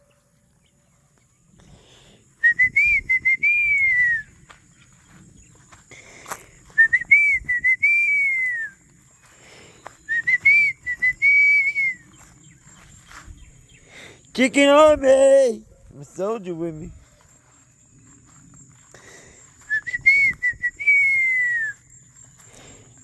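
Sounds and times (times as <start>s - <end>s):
person whistling a call: 2.4s - 4.3s, 6.7s - 8.8s, 10.1s - 12.1s, 19.6s - 21.8s.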